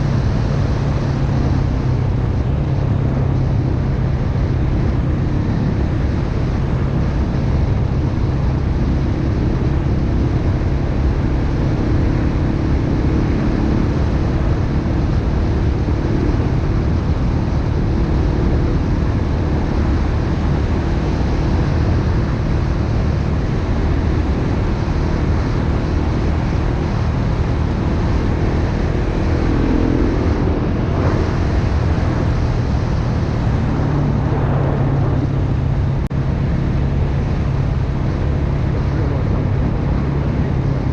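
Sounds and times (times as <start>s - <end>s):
dirt bike engine running: 0.0s - 40.9s
wind on microphone: 0.0s - 40.9s.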